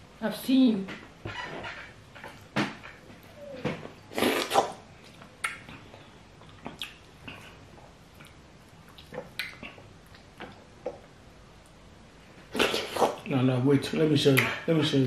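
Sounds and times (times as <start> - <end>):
wet chewing and lip smacking: 4.2 - 11.8.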